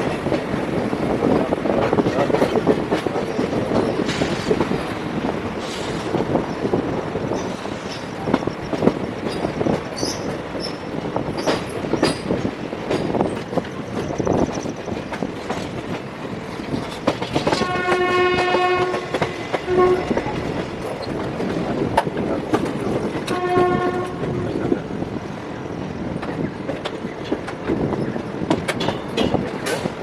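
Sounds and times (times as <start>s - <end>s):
train wheels clattering on rails: 0.0s - 30.0s
locomotive horn: 17.5s - 20.4s, 23.2s - 24.6s.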